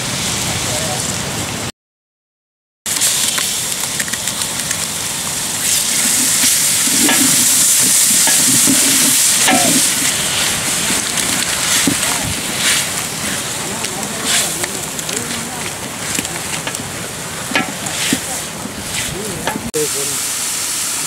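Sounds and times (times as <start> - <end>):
onions sizzling in hot oil: 2.9 - 21.0
ladle stirring in pot: 5.8 - 19.7.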